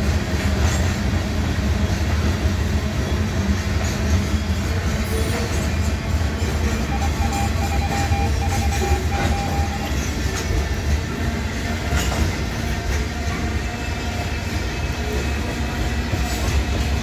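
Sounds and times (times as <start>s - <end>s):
freight train rumbling past: 0.0s - 17.0s
train wheel clicks: 11.8s - 13.6s.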